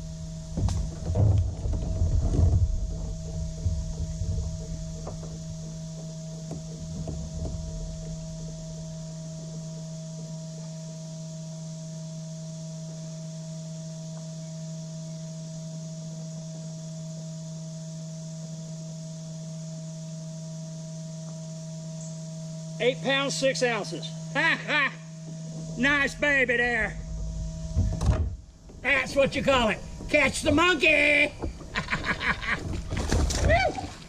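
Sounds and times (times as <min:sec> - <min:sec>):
handling knocks and bumps: 0:00.0 - 0:09.2, 0:27.0 - 0:34.0
electrical hum: 0:00.0 - 0:34.0.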